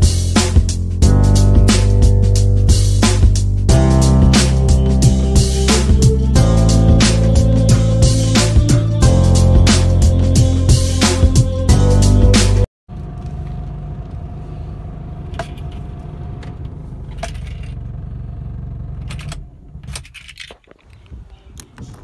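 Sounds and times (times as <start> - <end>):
music: 0.0 - 12.7
car engine idling inside cabin: 12.9 - 19.8
keys jangling: 19.1 - 20.8.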